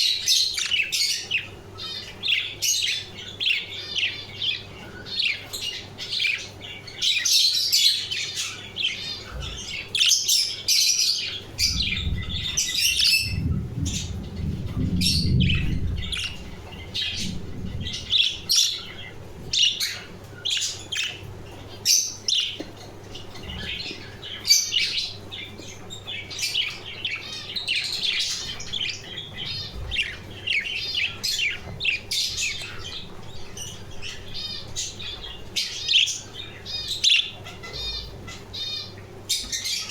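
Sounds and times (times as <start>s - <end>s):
budgerigars chattering: 0.0s - 39.9s
low rumble: 11.6s - 18.6s.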